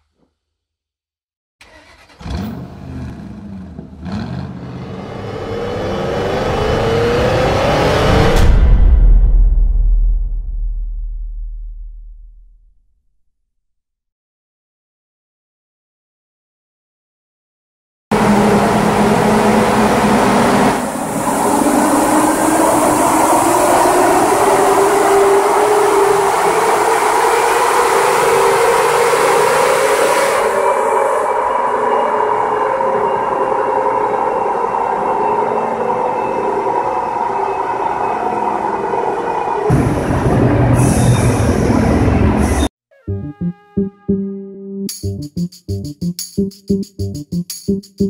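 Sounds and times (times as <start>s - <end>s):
car engine revving: 1.6s - 8.5s
car engine running hard: 18.2s - 24.4s.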